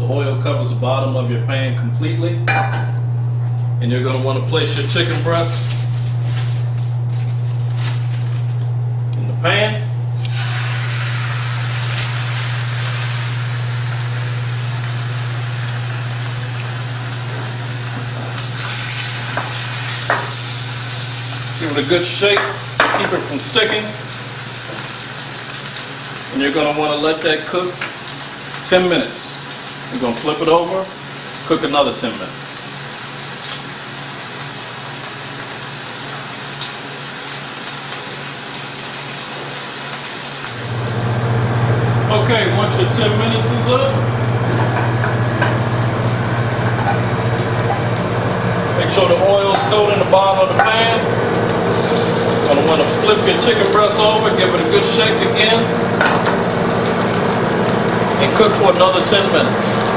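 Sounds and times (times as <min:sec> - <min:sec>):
steady low hum: 0:00.0 - 0:26.0, 0:40.6 - 0:59.9
chicken sizzling in oil: 0:10.2 - 0:49.1, 0:51.2 - 0:59.9.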